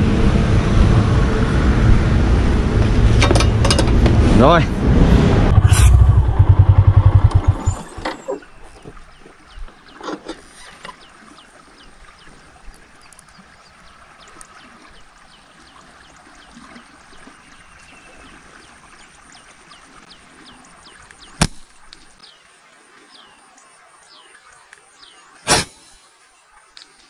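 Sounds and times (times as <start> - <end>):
faint rural outdoor background: 5.5 - 27.0
sharp snap: 21.4 - 21.7, 25.5 - 26.0.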